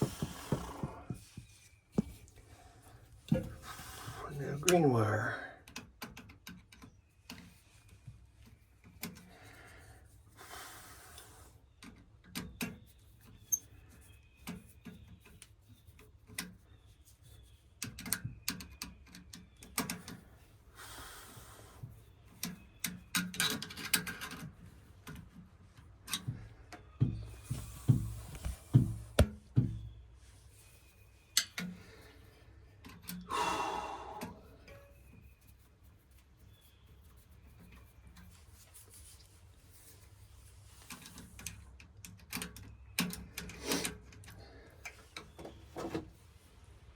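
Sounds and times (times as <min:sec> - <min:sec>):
hand tools clicking and tapping: 0:40.9 - 0:45.5.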